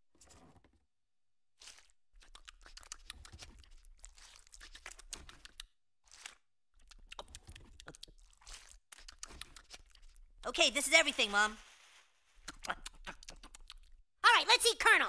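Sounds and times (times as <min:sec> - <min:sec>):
crispy skin being torn: 0:01.6 - 0:10.2
crackly crunching chewing: 0:01.6 - 0:10.4, 0:12.4 - 0:14.0.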